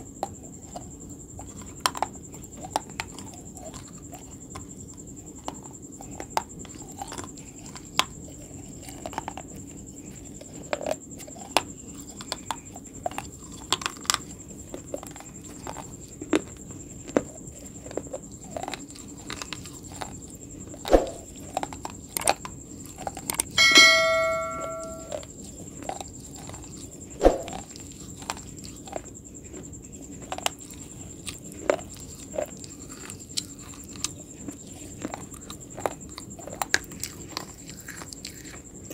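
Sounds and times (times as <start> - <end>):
chewing crunchy food: 0.0 - 23.6, 25.2 - 38.9
bell-like ring: 23.6 - 25.2
faint high whine: 23.6 - 25.3.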